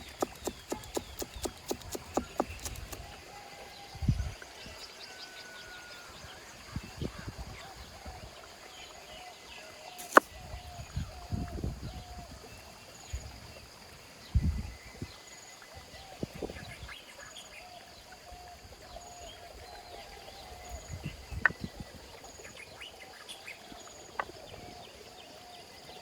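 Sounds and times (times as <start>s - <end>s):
birds chirping: 0.0s - 7.2s
sharp click: 10.0s - 10.3s.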